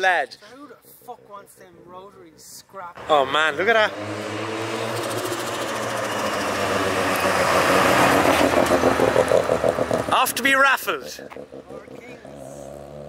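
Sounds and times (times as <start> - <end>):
rotary car engine passing by: 3.0 - 13.0.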